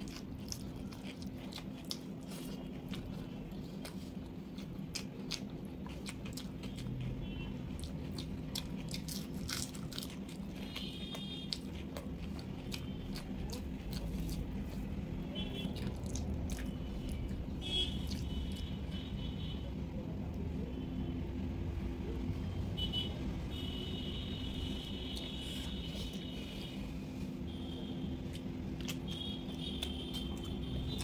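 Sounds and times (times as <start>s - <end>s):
person chewing food: 0.0s - 18.9s, 27.6s - 31.0s
low steady hum: 0.0s - 31.0s.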